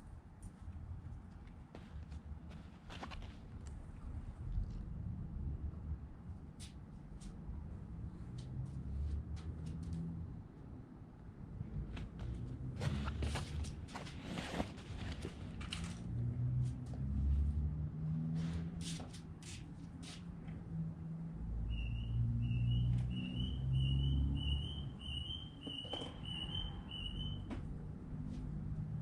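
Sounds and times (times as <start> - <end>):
bird calling high notes: 21.7 - 27.5.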